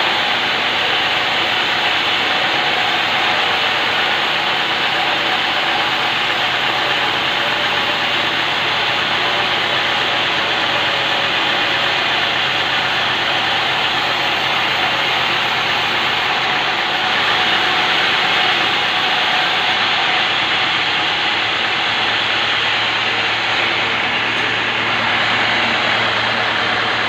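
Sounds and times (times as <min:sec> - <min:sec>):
band saw cutting wood: 0:00.0 - 0:27.0.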